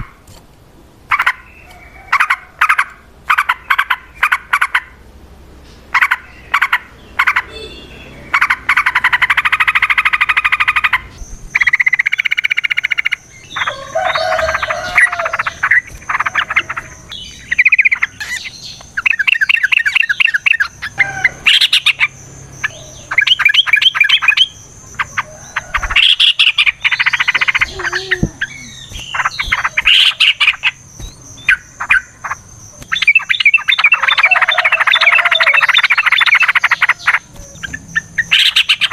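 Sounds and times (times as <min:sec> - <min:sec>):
bulbuls singing chattering trills: 0:00.9 - 0:38.9.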